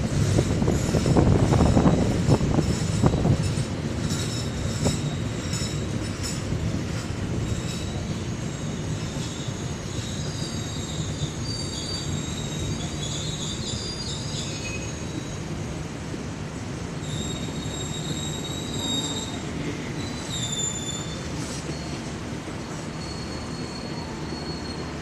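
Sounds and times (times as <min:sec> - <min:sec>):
train coaches rumbling: 0:00.0 - 0:25.0
high-pitched wheel squeal: 0:07.5 - 0:15.5, 0:17.0 - 0:25.0.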